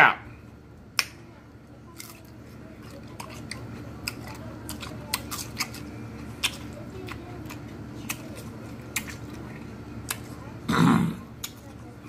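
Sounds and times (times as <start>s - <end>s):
cucumber being chewed: 1.9s - 10.4s, 11.1s - 12.0s.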